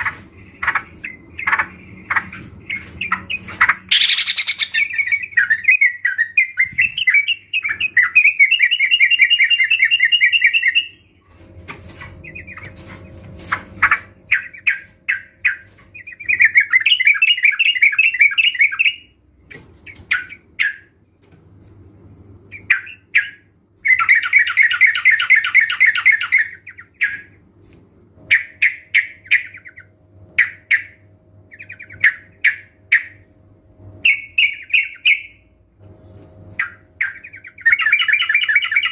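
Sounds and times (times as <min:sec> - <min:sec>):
birds chattering: 0:00.0 - 0:11.0, 0:11.8 - 0:21.0
single bird calls: 0:00.0 - 0:11.0.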